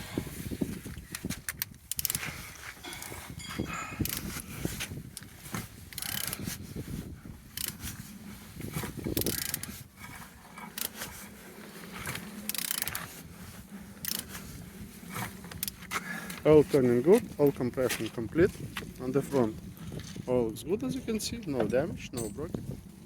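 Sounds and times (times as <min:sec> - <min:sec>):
ratchet wrench clicking: 0:01.5 - 0:02.2, 0:04.0 - 0:04.3, 0:05.9 - 0:06.4, 0:07.6 - 0:07.8, 0:09.2 - 0:09.7, 0:12.5 - 0:13.0, 0:14.0 - 0:14.4.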